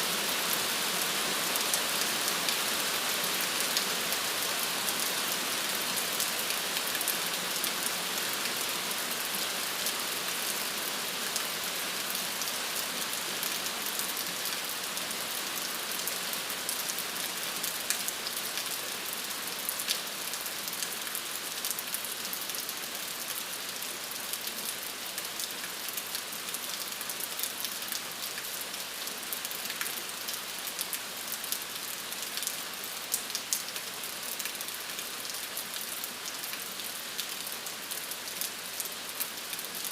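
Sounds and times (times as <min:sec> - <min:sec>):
rain pattering: 0:15.6 - 0:39.9.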